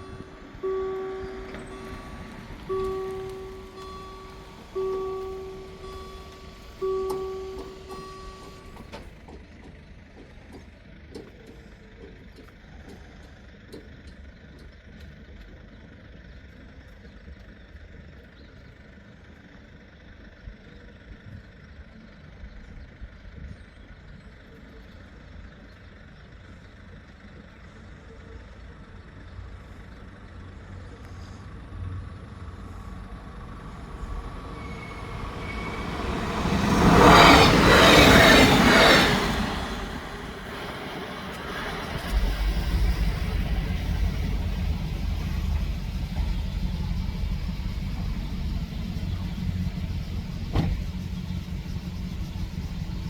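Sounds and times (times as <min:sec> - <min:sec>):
steady pitched tone: 0:00.0 - 0:08.9, 0:33.2 - 0:53.0
train approaching: 0:00.0 - 0:15.2, 0:28.0 - 0:53.0
road traffic rumble: 0:00.0 - 0:53.0.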